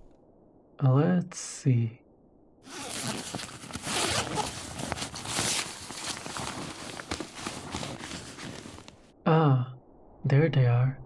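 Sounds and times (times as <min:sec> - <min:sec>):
rustling of bags: 0:02.7 - 0:09.1.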